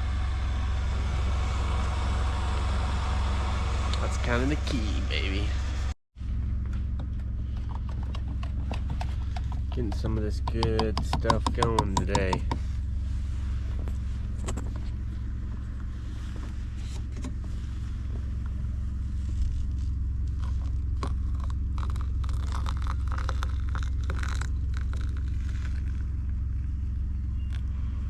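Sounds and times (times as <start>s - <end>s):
vehicle engine idling: 0.0s - 28.0s
gear clicking and scraping: 6.6s - 12.6s, 19.2s - 26.7s.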